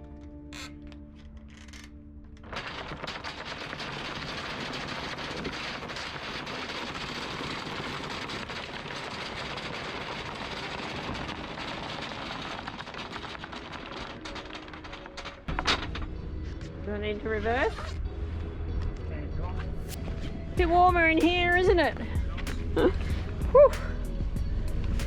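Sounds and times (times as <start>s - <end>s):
anchor chain rattling: 10.4s - 16.1s.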